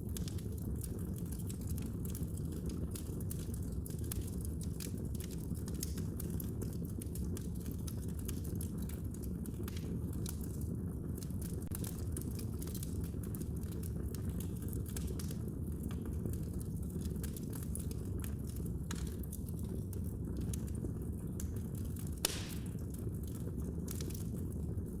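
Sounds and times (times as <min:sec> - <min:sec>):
fireplace fire crackling: 0:00.0 - 0:25.0.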